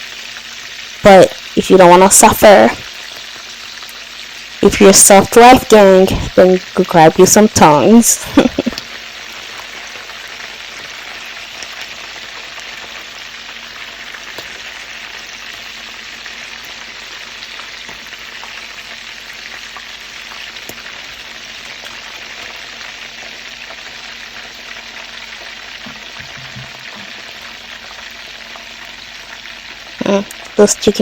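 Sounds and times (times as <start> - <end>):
chicken sizzling in hot oil: 0.0 - 31.0
oil popping: 25.8 - 29.4.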